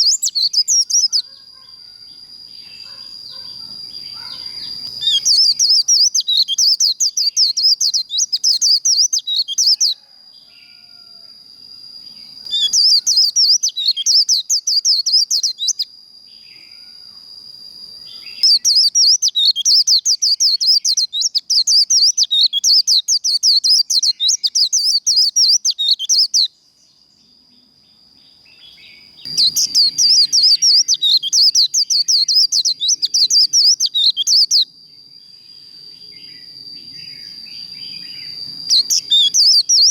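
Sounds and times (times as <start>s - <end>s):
bird twittering song: 0.0s - 10.0s, 12.0s - 16.9s, 18.0s - 39.9s
steady high-pitched tone: 29.3s - 39.9s.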